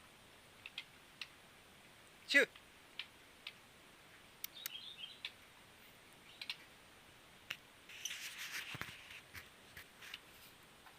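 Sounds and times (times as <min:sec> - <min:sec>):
faint high bird twitter: 0:04.4 - 0:05.3.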